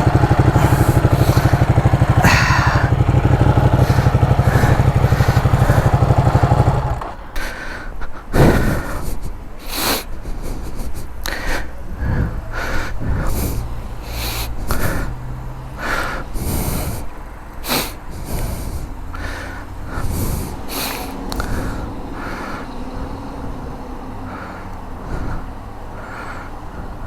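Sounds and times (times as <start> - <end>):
motorcycle engine idling: 0.0 - 7.4
short hissing bursts: 16.4 - 19.0.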